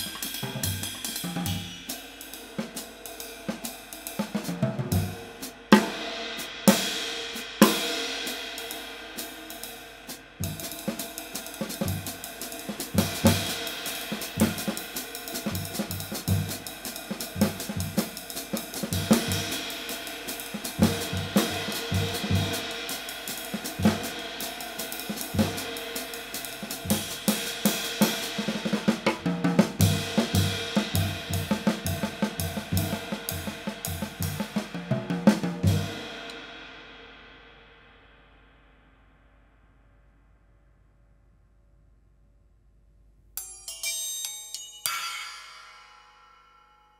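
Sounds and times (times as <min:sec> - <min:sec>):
snare drum: 0:00.0 - 0:08.4, 0:10.5 - 0:36.4
drum kit groove: 0:00.0 - 0:36.4.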